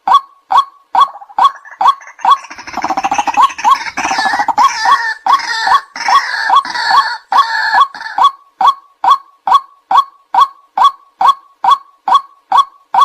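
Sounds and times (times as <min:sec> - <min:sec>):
waterhen kwak calls: 0:00.5 - 0:13.0
harsh rapid chattering: 0:01.0 - 0:08.3.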